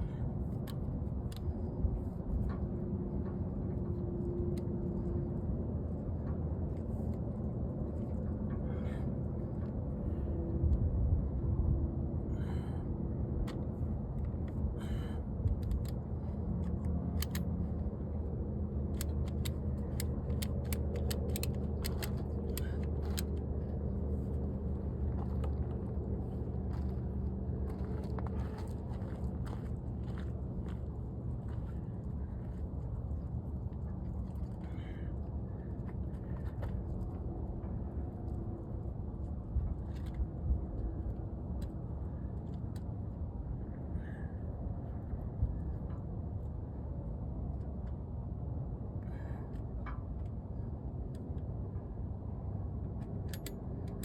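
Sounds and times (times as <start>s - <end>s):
sharp clicks and rattles: 15.6s - 17.8s, 18.8s - 23.5s.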